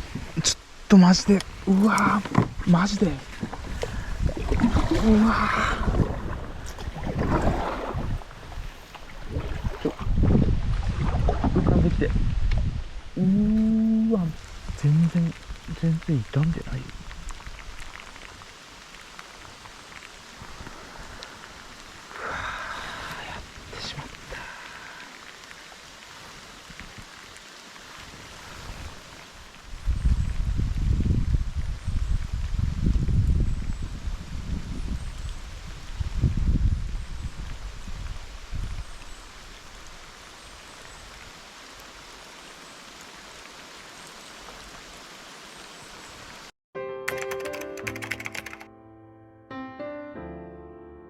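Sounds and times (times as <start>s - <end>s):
rain falling: 0.0s - 9.9s, 12.0s - 46.5s
raindrop ticks: 0.1s - 4.5s, 13.2s - 28.2s
low bumps: 1.2s - 13.8s.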